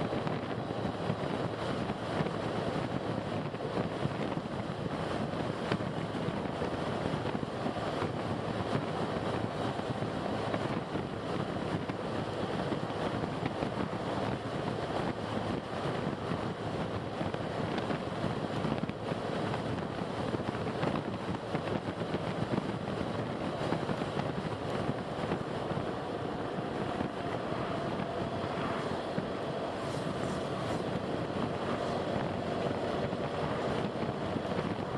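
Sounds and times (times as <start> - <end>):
car road and wind noise: 0.0 - 34.9.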